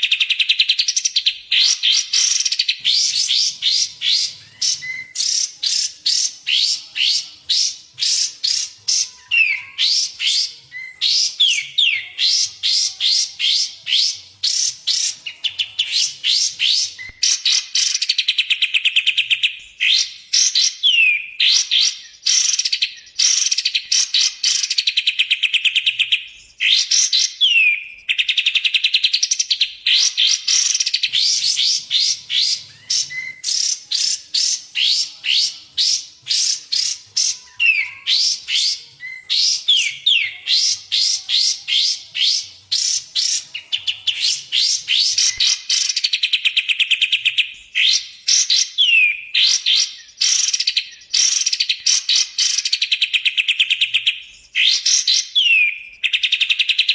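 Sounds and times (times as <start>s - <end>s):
songbirds chirping and whistling: 0.0s - 56.9s.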